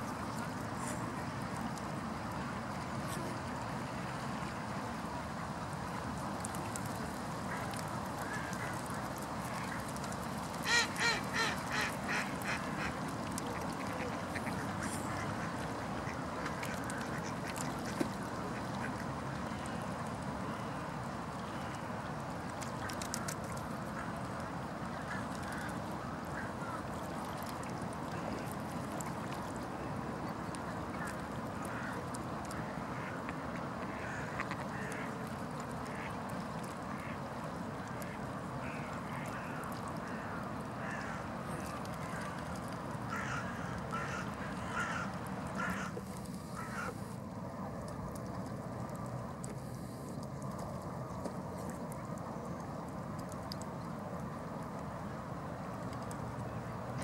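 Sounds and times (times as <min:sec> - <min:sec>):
steady background noise: 0:00.0 - 0:57.0
duck quacking: 0:10.7 - 0:12.9.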